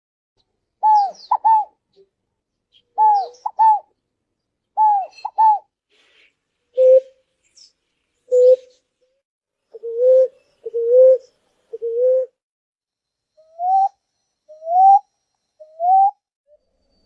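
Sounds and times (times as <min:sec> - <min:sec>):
dove cooing: 0:00.8 - 0:01.7, 0:03.0 - 0:03.9, 0:04.8 - 0:05.7, 0:06.8 - 0:07.2, 0:08.3 - 0:08.8, 0:09.8 - 0:12.4.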